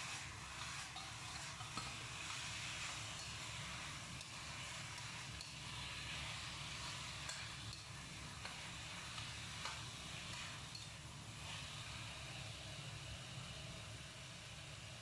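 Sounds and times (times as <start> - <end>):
vegetables sizzling in oil: 0.0 - 15.0
metal spoon clicking on pan: 6.9 - 8.6.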